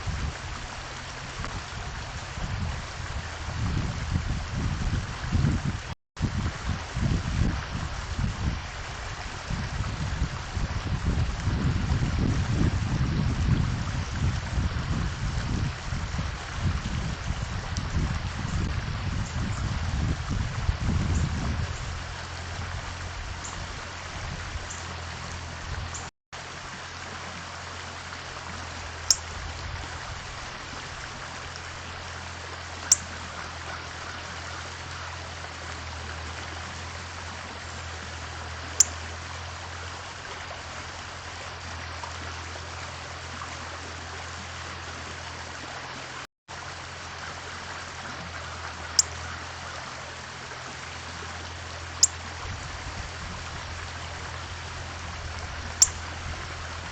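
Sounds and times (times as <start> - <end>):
small bird chip call: 55.8 - 56.0.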